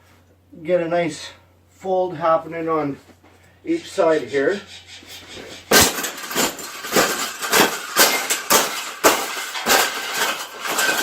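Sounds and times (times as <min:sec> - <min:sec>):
wire bird cage rattling and clanking: 0:05.4 - 0:11.0.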